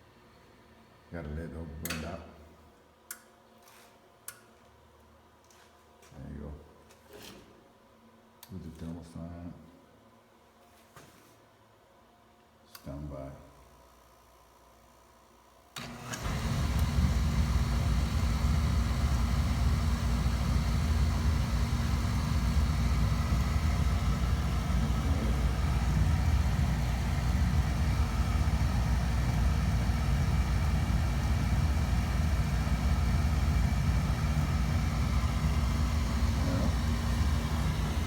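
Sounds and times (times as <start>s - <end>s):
oil burner firing: 15.8s - 38.0s.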